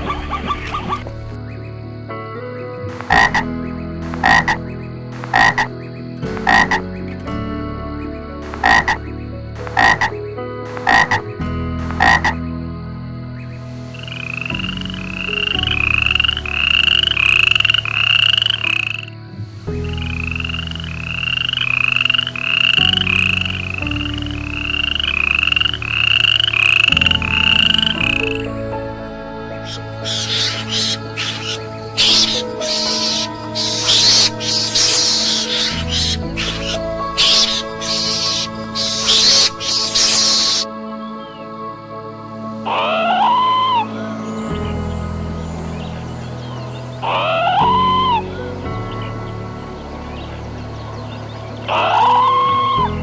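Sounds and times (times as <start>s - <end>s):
frogs croaking: 0.0s - 53.0s.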